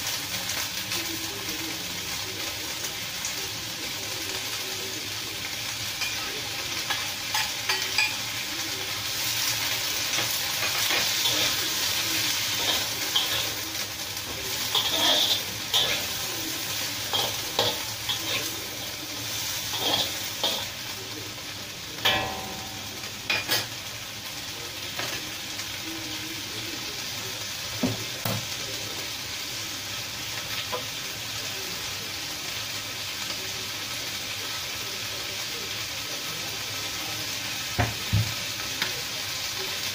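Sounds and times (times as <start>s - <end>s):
beans sizzling in a wok: 0.0s - 39.9s
metal spatula scraping a wok: 14.7s - 16.2s, 19.6s - 20.7s.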